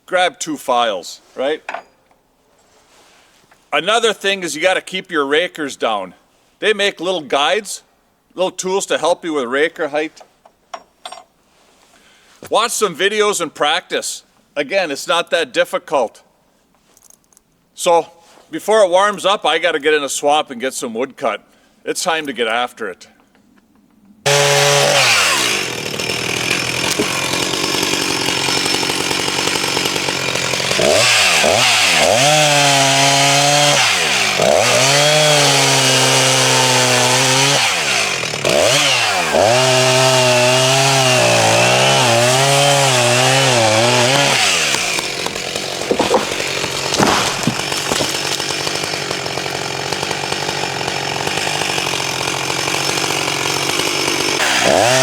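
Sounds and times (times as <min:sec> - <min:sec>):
chainsaw cutting wood: 0:24.3 - 0:55.0
sharp knocks: 0:44.7 - 0:48.5.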